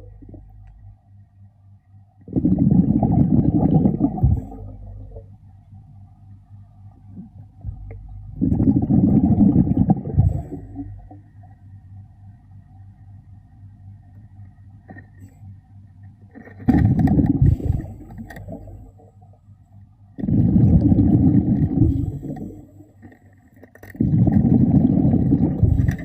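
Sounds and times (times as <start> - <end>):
underwater air bubbling: 0.0 - 0.8, 2.3 - 5.3, 7.1 - 11.4, 16.4 - 19.3, 20.2 - 26.0
low steady rumble: 0.0 - 26.0.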